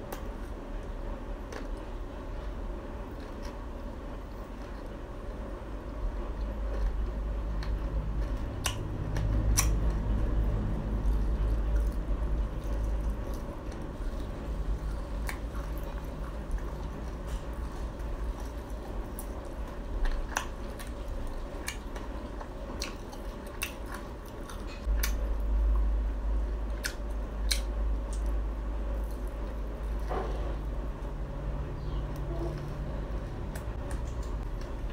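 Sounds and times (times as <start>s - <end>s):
crispy food chewing: 0.0s - 31.3s.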